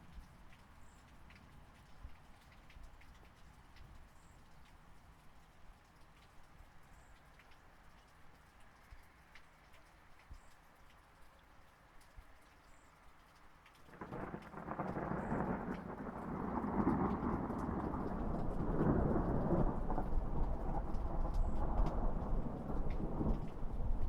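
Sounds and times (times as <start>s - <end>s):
light rain: 0.0s - 24.0s
thunder rumbling: 13.9s - 24.0s.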